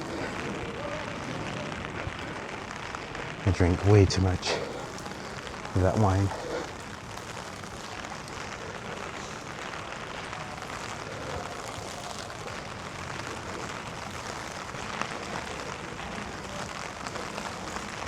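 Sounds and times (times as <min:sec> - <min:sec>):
rain falling on street: 0:00.0 - 0:18.0.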